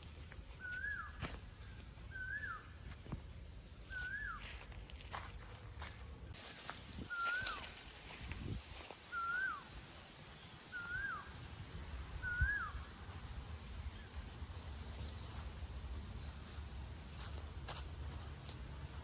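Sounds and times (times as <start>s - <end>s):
faint high hiss: 6.3s - 18.9s
bird call: 7.1s - 7.7s, 9.1s - 9.7s, 10.7s - 11.4s, 12.2s - 12.9s.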